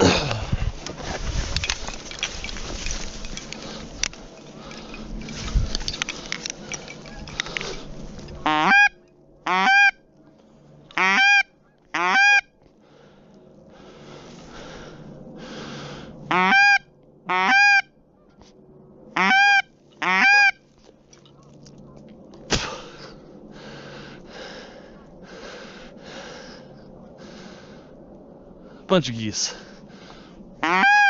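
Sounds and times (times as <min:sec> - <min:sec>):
goose honking: 0:08.4 - 0:10.0, 0:10.9 - 0:12.5, 0:16.3 - 0:18.3, 0:19.2 - 0:20.6, 0:30.6 - 0:31.0.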